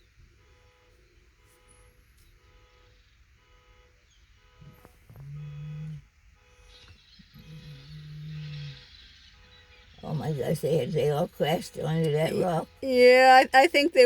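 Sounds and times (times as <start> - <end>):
faint outdoor background noise: 0.0 - 14.0
low horn toot: 3.4 - 8.8.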